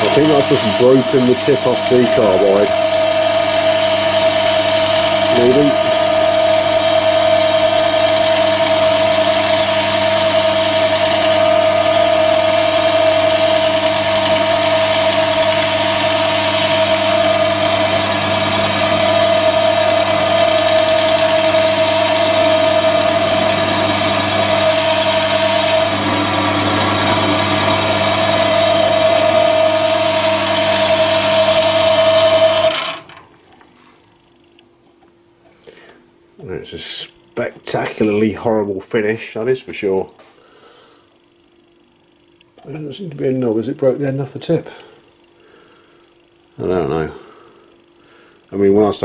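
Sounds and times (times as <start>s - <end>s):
lathe motor whining: 0.0s - 34.0s.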